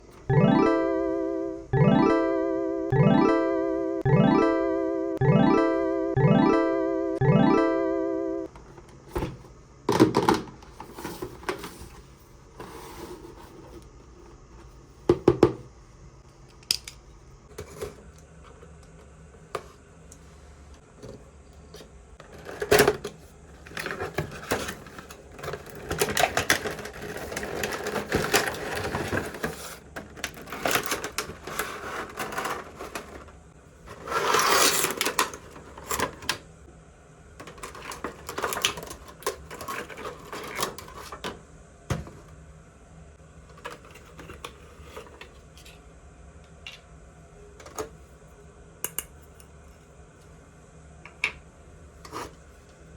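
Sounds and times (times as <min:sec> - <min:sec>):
plastic toys clicking and knocking: 0:23.7 - 0:33.2.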